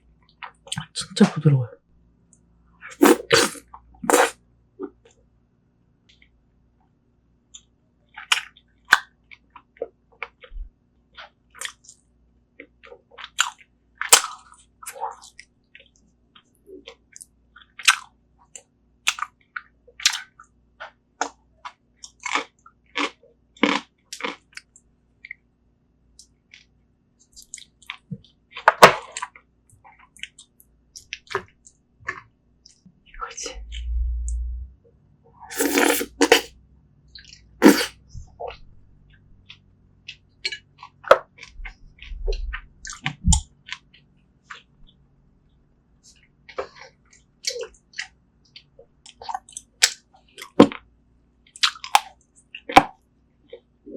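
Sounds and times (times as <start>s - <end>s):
lip smacks: 3.0s - 4.3s, 35.5s - 36.5s, 37.6s - 37.9s
wet chewing: 3.0s - 4.3s, 35.5s - 36.5s, 37.6s - 37.9s.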